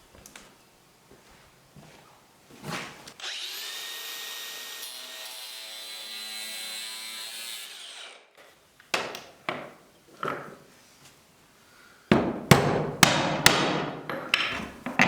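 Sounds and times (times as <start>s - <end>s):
power tool whining: 3.2s - 8.5s
sharp knocks: 12.1s - 15.0s.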